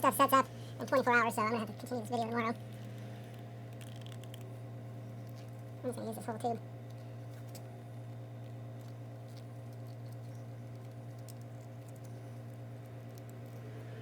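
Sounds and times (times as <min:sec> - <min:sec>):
tube squeezed clicks and crinkles: 0:02.6 - 0:04.6.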